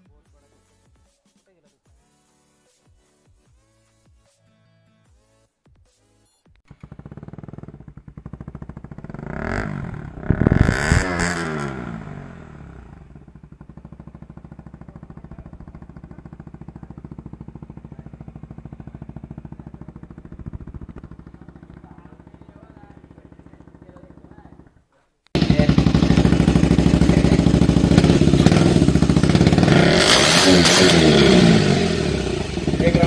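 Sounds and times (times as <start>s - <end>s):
motorcycle engine idling and revving: 6.7s - 24.8s, 25.4s - 33.0s.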